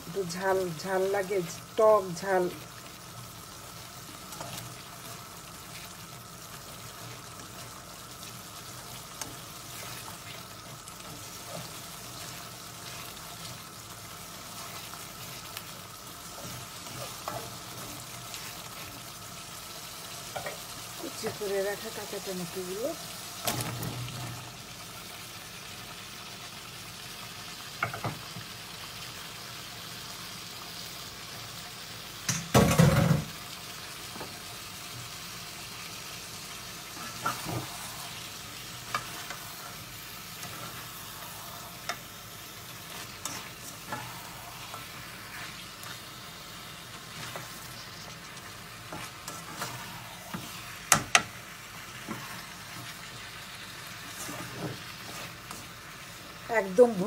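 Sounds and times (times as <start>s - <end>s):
food sizzling in a wok: 0.0s - 57.0s
spatula scraping and knocking wok: 8.6s - 19.1s, 20.0s - 21.9s, 36.9s - 56.4s.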